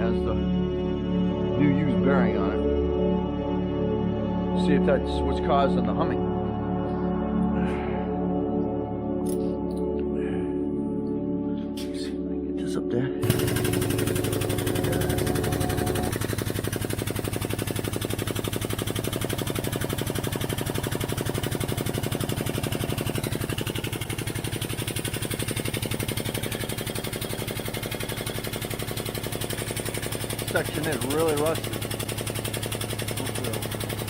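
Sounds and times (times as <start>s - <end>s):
power tool raising car jack: 13.2s - 34.0s.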